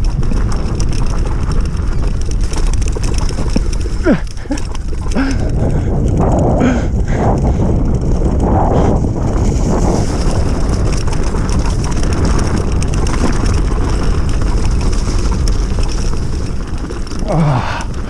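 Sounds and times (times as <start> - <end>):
faint knocks from bike: 0.0 - 5.2
electric motorbike running: 0.0 - 18.0
wind rushing over microphone: 0.0 - 18.0.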